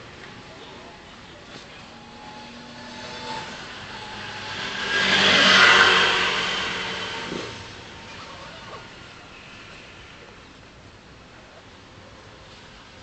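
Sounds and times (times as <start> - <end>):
vehicle passing close by: 1.8 - 9.0.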